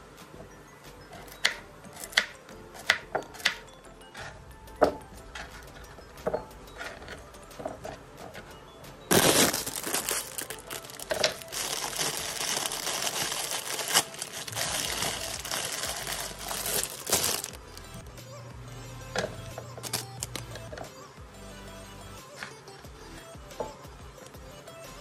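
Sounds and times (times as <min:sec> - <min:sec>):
plastic bag crinkling: 0:09.1 - 0:18.0, 0:19.8 - 0:20.6.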